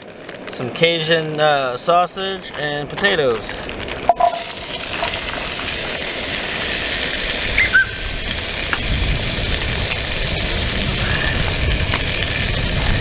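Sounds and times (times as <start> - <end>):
sausage and potatoes sizzling: 3.7 - 13.0.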